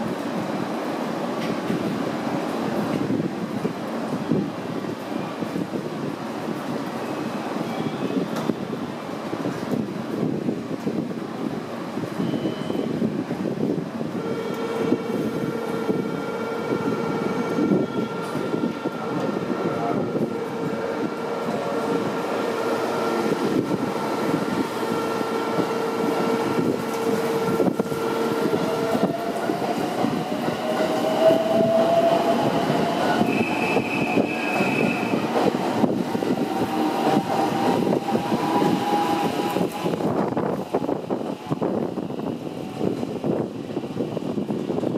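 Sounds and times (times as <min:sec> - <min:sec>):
electric train rumbling on rails: 0:00.0 - 0:44.9.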